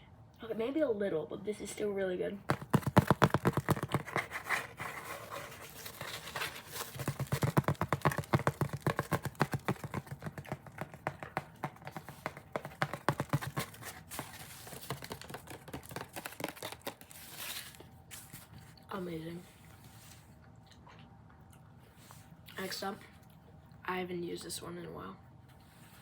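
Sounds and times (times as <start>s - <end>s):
fast crisp tapping: 2.5s - 5.0s, 5.6s - 17.1s
scratching on object: 2.5s - 18.5s.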